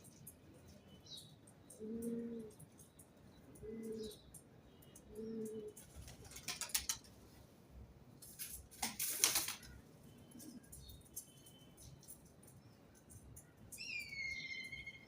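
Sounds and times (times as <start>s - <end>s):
faint small birds chirping: 0.0s - 7.4s, 9.4s - 15.0s
pigeon cooing: 1.7s - 2.6s, 3.5s - 4.2s, 5.1s - 5.8s
wings flapping: 5.8s - 7.1s, 8.7s - 9.7s.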